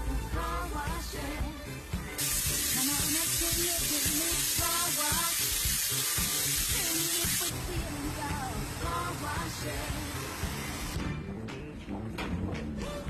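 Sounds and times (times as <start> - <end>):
background music: 0.0 - 13.0
high-pressure water spray hissing: 2.2 - 11.0.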